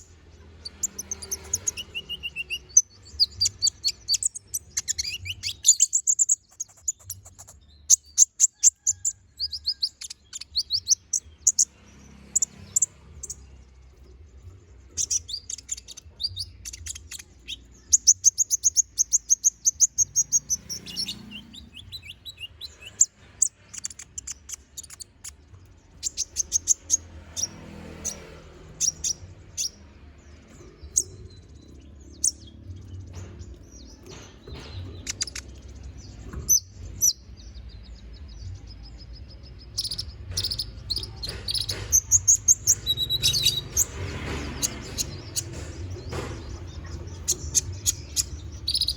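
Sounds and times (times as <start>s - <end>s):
sunbird chirping and trilling: 0.0s - 48.9s.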